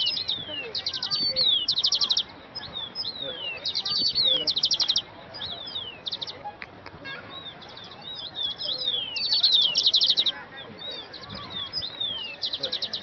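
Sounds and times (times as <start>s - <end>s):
birds chirping and calling: 0.0s - 13.0s
fast trill of chirps: 7.4s - 10.4s.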